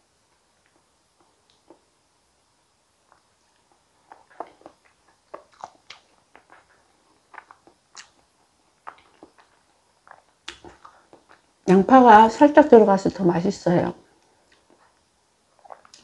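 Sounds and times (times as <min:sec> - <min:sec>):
wet mouth sounds eating: 0:03.1 - 0:11.6, 0:14.5 - 0:16.0.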